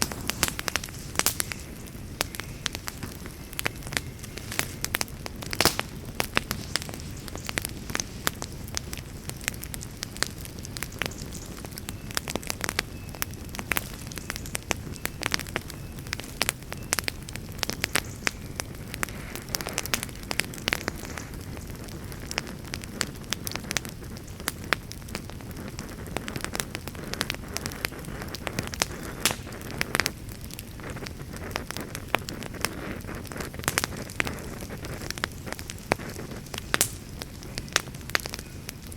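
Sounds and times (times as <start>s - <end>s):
campfire crackling and popping: 0.0s - 38.9s
low hiss of fire: 0.0s - 38.9s.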